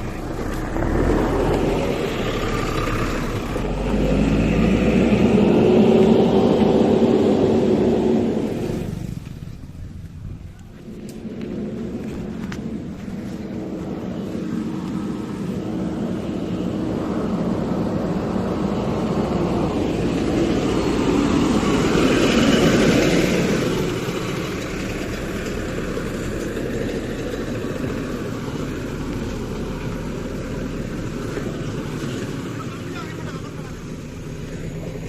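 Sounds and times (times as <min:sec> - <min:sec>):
diesel engine of heavy machinery: 0:00.0 - 0:35.0.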